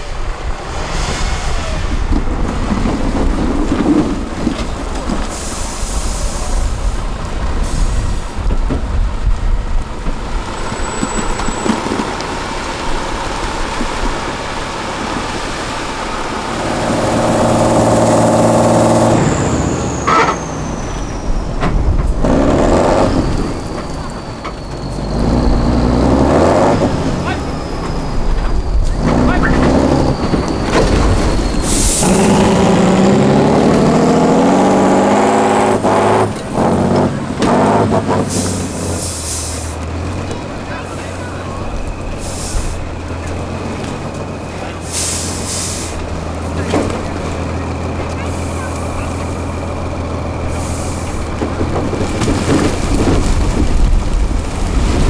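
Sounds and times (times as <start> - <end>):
falling high whine: 0.0 - 3.9
diesel truck engine revving: 0.0 - 55.0.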